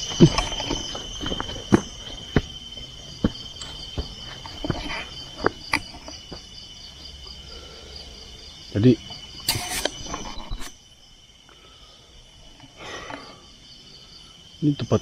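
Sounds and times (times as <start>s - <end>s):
footsteps on forest floor: 0.0s - 7.2s
insects chirring: 0.0s - 15.0s.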